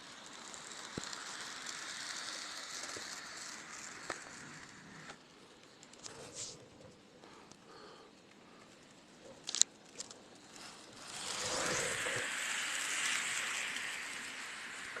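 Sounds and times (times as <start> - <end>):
train rushing past: 0.3 - 5.2, 10.4 - 15.0.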